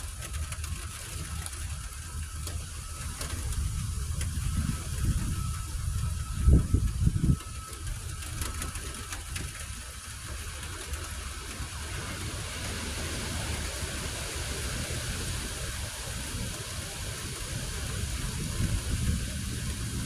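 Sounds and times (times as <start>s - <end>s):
thunder rumbling: 11.4s - 20.0s.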